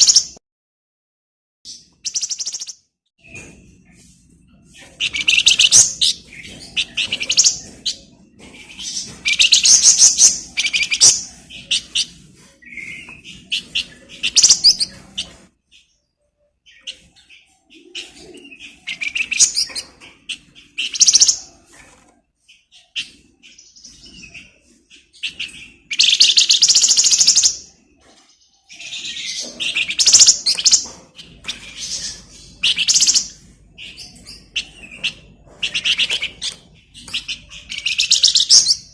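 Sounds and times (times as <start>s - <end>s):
songbird chatter and trills: 1.7s - 38.9s.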